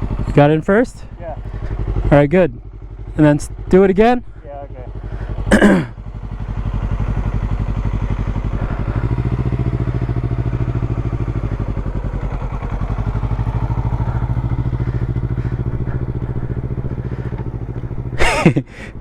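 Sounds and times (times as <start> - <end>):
motorcycle engine pulsing: 0.0 - 19.0.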